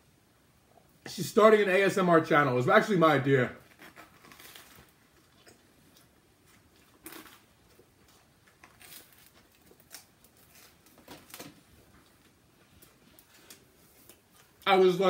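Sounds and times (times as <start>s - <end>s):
soft eating crunches: 3.6s - 14.7s.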